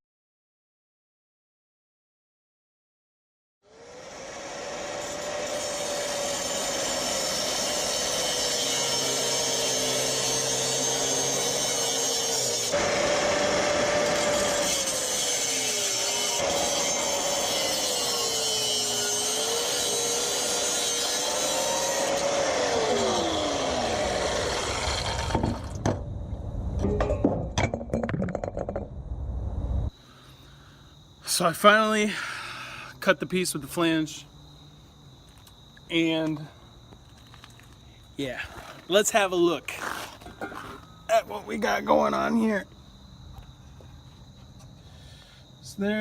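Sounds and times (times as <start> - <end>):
power tool cutting metal pipe: 3.6 - 25.9.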